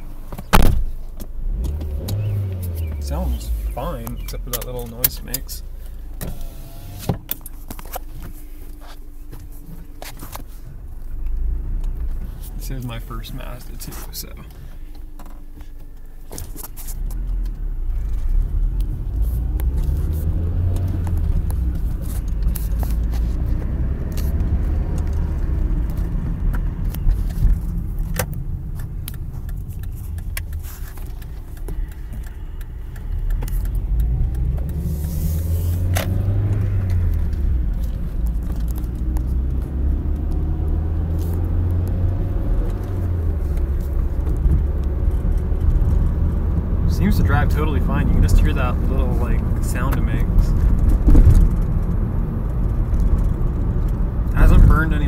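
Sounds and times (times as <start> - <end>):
car engine accelerating: 0.0 - 55.0
road noise inside car: 0.0 - 55.0.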